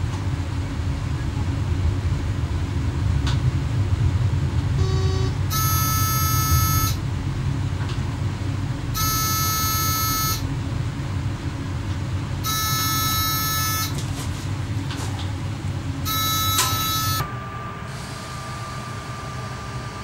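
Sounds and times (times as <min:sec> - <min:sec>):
low rumble of train: 0:00.0 - 0:20.0
electronic warning buzzer: 0:04.8 - 0:07.0, 0:09.0 - 0:10.5, 0:12.4 - 0:14.0, 0:16.0 - 0:17.4.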